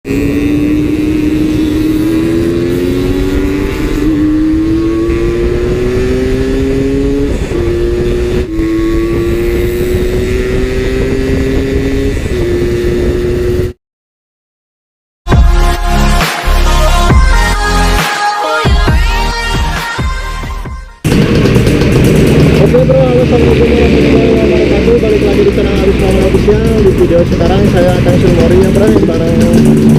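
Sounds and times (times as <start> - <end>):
motorcycle engine running: 0.1 - 13.7, 21.0 - 29.9.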